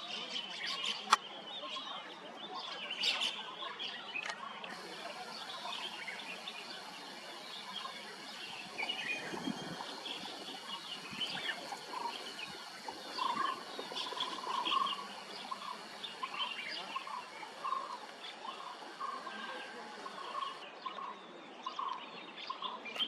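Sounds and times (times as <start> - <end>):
birds calling and chirping: 2.6 - 23.0
background hiss: 4.7 - 20.6.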